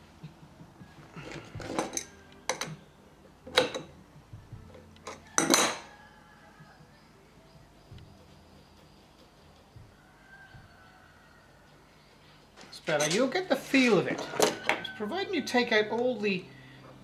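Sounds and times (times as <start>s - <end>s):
metal clinks and scrapes: 1.2s - 2.8s, 12.8s - 14.7s.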